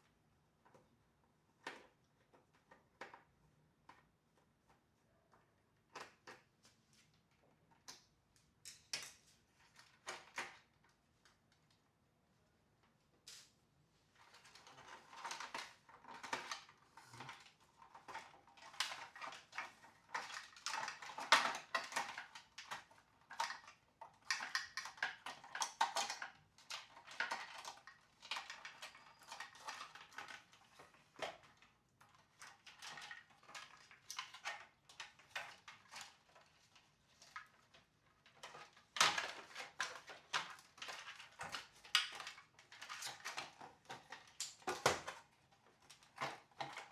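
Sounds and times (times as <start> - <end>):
small hard parts clicking and scraping: 14.2 - 46.9.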